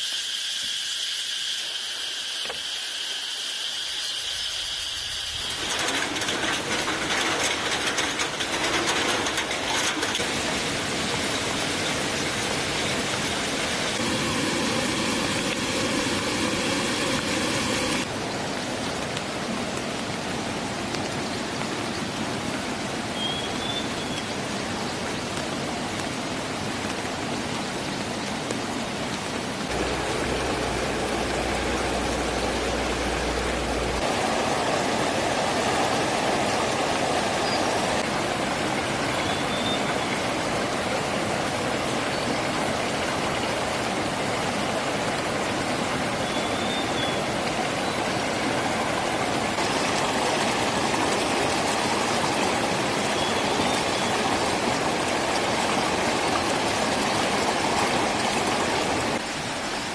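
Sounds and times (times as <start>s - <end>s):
river water rushing: 5.4s - 59.9s
low rumble: 29.7s - 34.2s.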